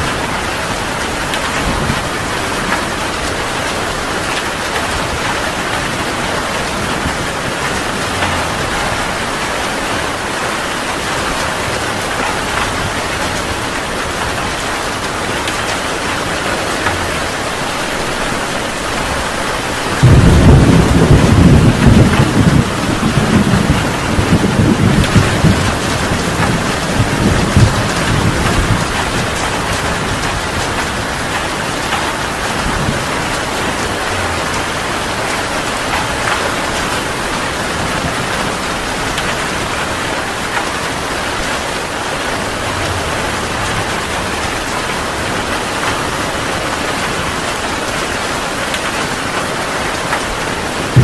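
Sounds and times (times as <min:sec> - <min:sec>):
deep rumble of thunder: 0:00.0 - 0:15.6, 0:16.3 - 0:40.2, 0:50.6 - 0:51.0
heavy rain: 0:00.0 - 0:51.0.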